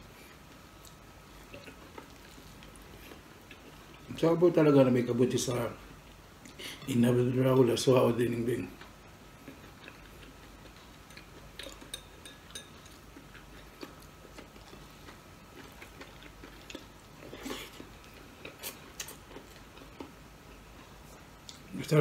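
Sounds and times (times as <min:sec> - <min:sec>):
man chewing: 0:00.0 - 0:04.2, 0:08.7 - 0:21.7.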